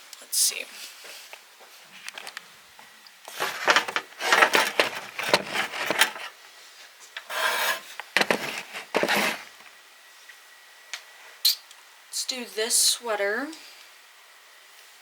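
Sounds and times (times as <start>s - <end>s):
clothes rustling and scraping: 0.7s - 2.4s, 3.3s - 9.5s.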